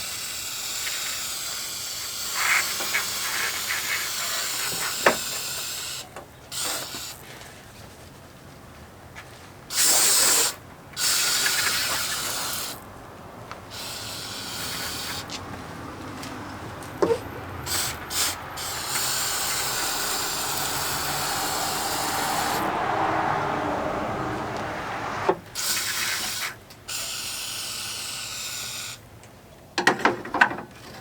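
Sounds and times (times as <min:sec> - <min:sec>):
aerosol spray hissing: 0:09.7 - 0:12.8, 0:13.7 - 0:15.4, 0:17.0 - 0:26.1.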